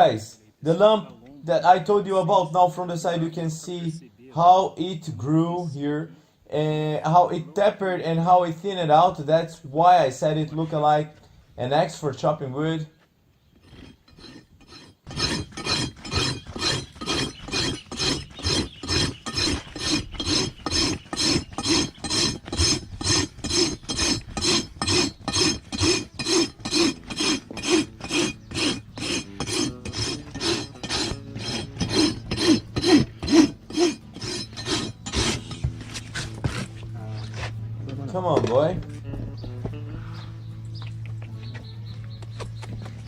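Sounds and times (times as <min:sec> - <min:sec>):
rasp filing hoof: 0:13.6 - 0:43.0.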